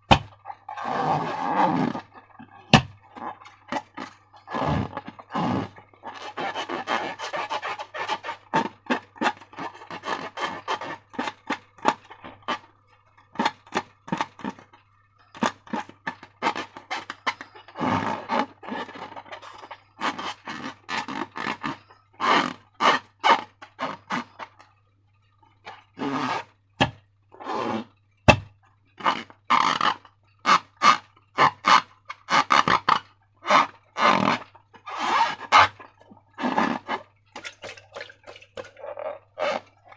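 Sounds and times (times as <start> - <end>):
slime squelching: 33.5 - 39.9.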